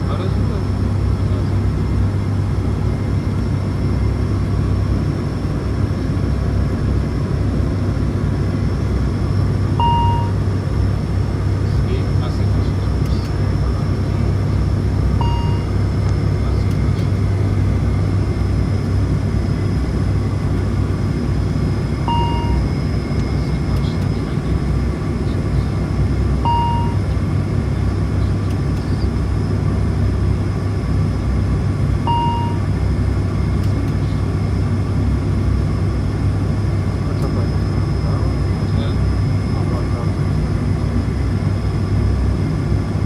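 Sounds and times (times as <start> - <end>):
turboprop engines droning: 0.0 - 43.0
short electronic beeps: 9.8 - 10.4, 15.2 - 15.7, 22.0 - 22.7, 26.4 - 27.0, 32.1 - 32.6.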